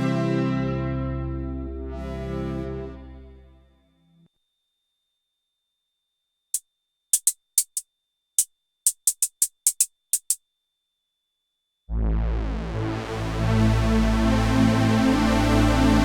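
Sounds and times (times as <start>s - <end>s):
loud synth with deep bass: 11.9s - 16.0s.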